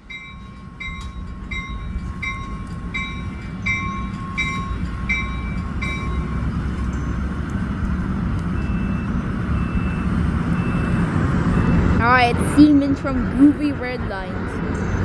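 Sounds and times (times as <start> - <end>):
locomotive bell ringing: 0.0 - 15.0
train engine rumble: 0.0 - 15.0.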